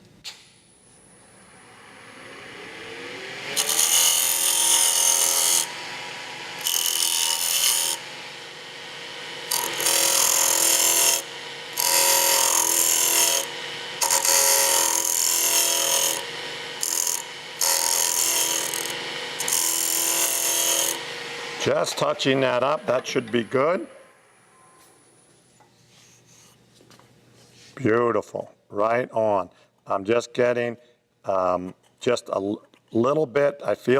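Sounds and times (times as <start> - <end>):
wood lathe motor hum: 1.3 - 24.6.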